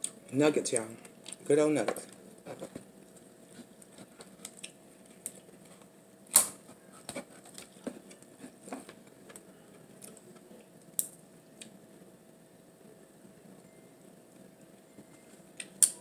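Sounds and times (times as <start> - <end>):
soft chewing: 2.1 - 5.9
sharp crack: 6.3 - 6.6.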